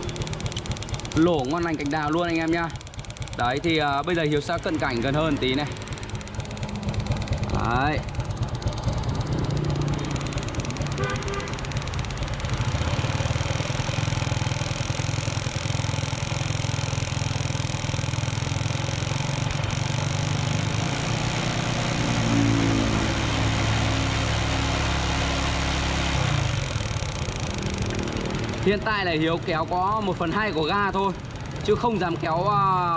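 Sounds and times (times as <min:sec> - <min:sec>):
small motorbike engine running: 0:00.0 - 0:32.9.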